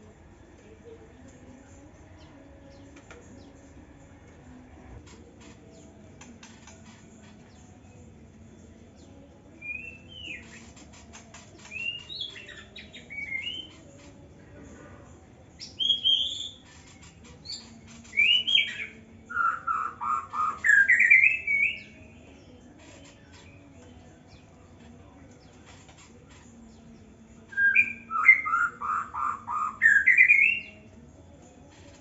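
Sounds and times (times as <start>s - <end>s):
bird whistling song: 9.6s - 13.8s, 15.6s - 23.5s, 27.4s - 30.8s.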